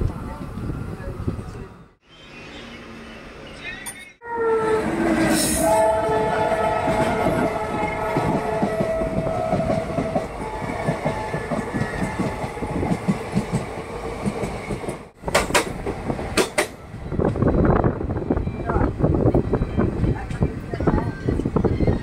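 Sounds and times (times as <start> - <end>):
train horn: 4.2 - 12.7
train wheels rumbling: 4.7 - 22.0
wheels clacking over rail joints: 6.6 - 17.4.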